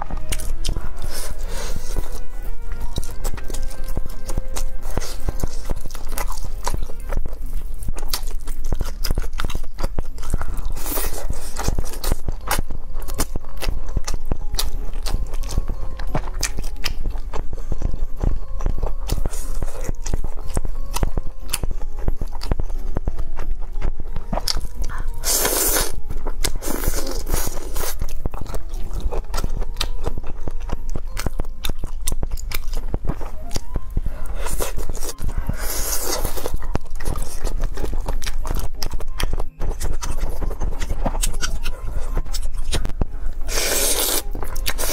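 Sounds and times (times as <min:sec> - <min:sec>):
background music: 0:00.0 - 0:44.9
chewing and crunching food: 0:00.0 - 0:44.9.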